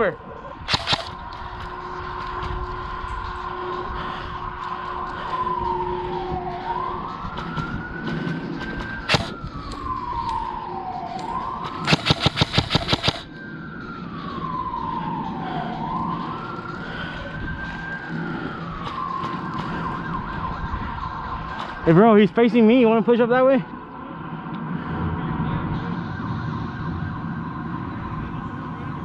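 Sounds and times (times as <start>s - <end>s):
wailing siren: 0.0s - 29.0s
airsoft gun rapid burst: 0.7s - 1.2s, 9.1s - 9.3s, 11.7s - 13.2s
sharp gunshot: 0.7s - 1.2s, 9.1s - 9.3s, 11.8s - 13.2s.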